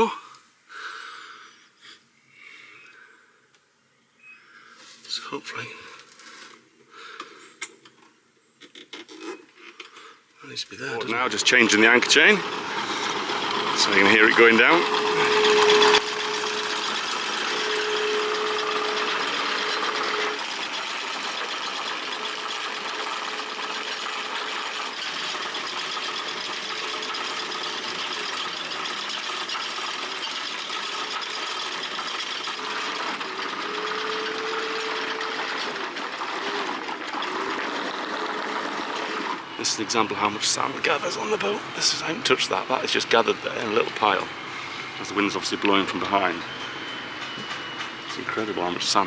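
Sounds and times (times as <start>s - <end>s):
anchor windlass humming: 11.0s - 29.0s, 39.4s - 49.0s
chain running out: 11.0s - 49.0s.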